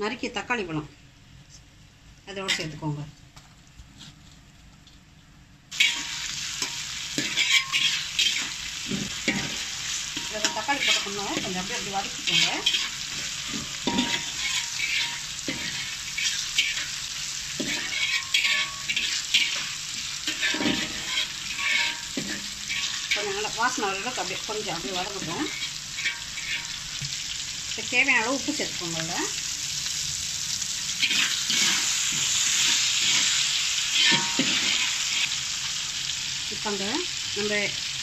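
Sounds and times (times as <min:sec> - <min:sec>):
scraping in the pan: 0:05.7 - 0:17.0, 0:17.6 - 0:24.2, 0:24.8 - 0:26.8, 0:31.0 - 0:35.3
tomatoes sizzling in hot oil: 0:05.7 - 0:38.0.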